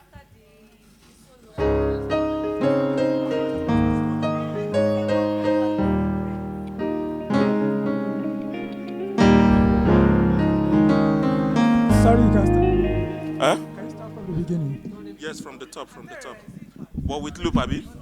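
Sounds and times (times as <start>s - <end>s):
electric keyboard piano chords: 1.6s - 15.6s
deep bass note: 9.4s - 15.0s.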